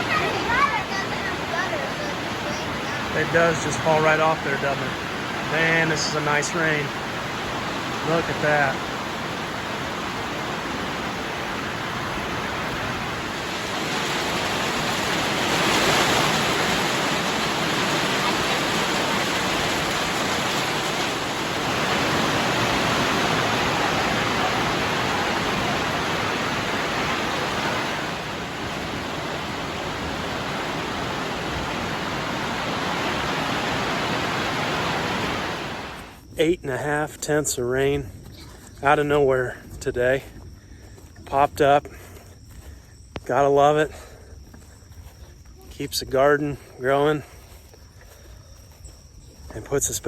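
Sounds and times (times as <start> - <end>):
water running off roof edge: 0.0 - 35.6
heavy rain on a roof: 0.0 - 36.2.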